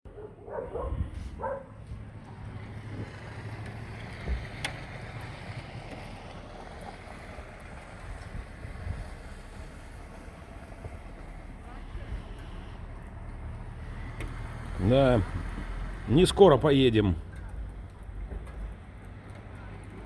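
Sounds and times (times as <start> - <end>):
strong wind gusts: 0.7 - 2.1, 8.0 - 11.2
wind buffeting on microphone: 0.7 - 2.1, 8.0 - 9.8.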